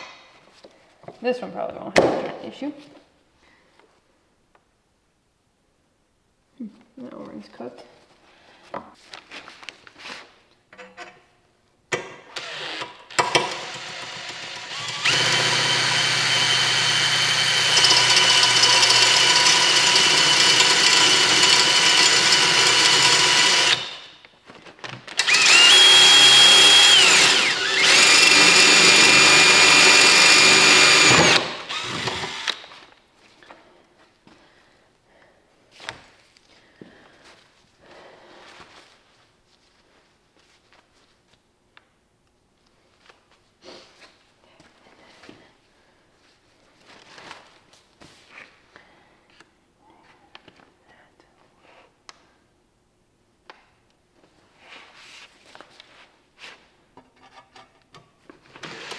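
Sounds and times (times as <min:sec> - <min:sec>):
power tool motor running: 0:12.4 - 0:24.2, 0:25.2 - 0:32.8.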